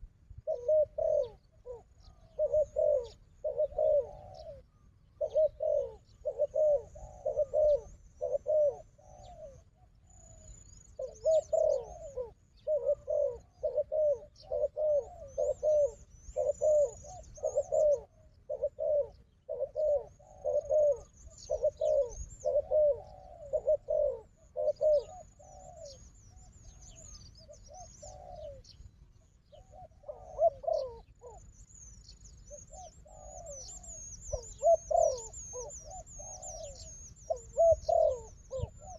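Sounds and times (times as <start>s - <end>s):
doves cooing: 0.0s - 38.9s
small birds chirping: 0.0s - 38.9s.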